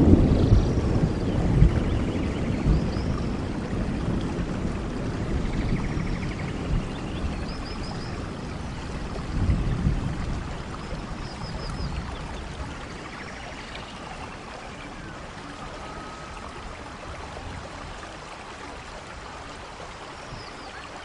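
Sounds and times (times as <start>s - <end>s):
faint high chirps: 15.8s - 16.4s.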